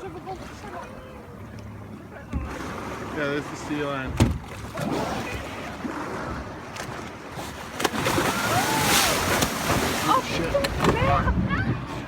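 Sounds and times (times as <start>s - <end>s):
water sloshing around boat: 0.0s - 12.0s
knock on boat: 4.0s - 4.6s.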